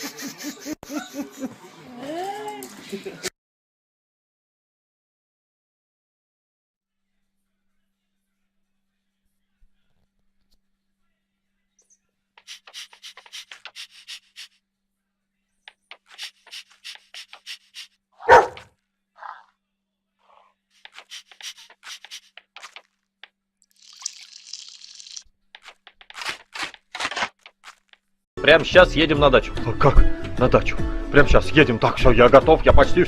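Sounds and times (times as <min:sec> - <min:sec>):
dog claws clicking and scuffling: 0:20.8 - 0:23.4, 0:24.4 - 0:28.1.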